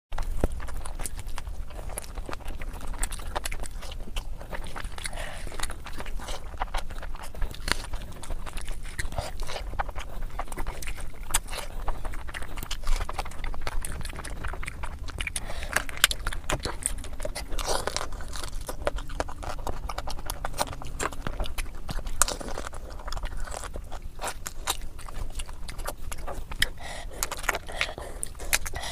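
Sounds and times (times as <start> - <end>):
faint low hum: 0.1 - 28.9
person chewing and biting food: 0.2 - 28.9.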